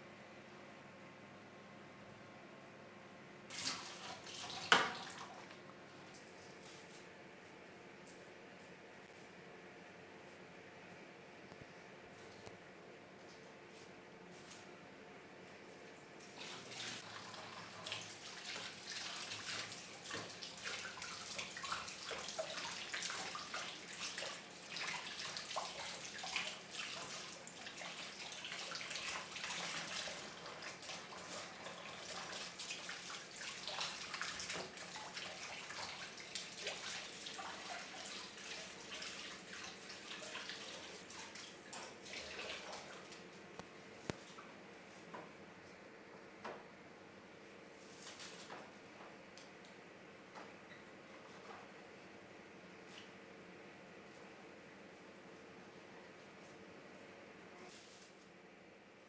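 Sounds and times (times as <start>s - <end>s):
tap water running into sink: 3.5s - 5.6s, 16.4s - 42.9s.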